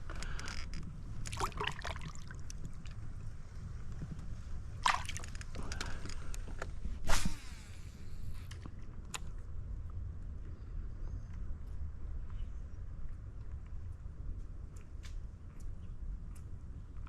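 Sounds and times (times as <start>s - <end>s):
water splashing and sloshing: 0.2s - 4.0s, 4.6s - 7.4s.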